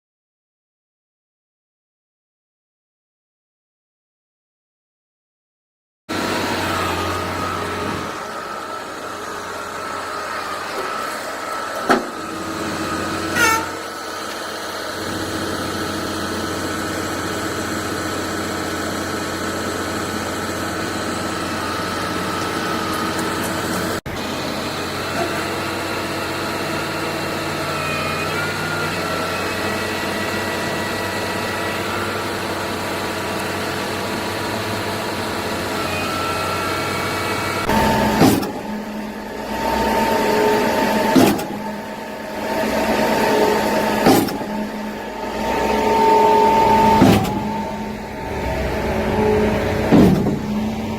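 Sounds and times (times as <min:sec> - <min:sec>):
diesel engine running: 0:06.1 - 0:50.9.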